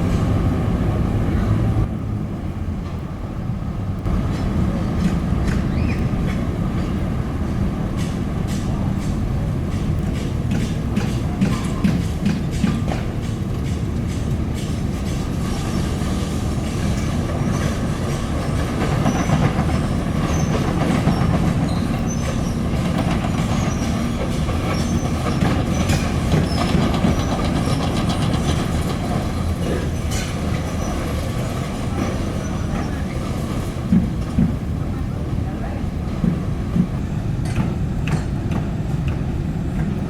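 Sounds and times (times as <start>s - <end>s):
faint brief squeaks: 5.6s - 6.1s, 21.2s - 22.6s.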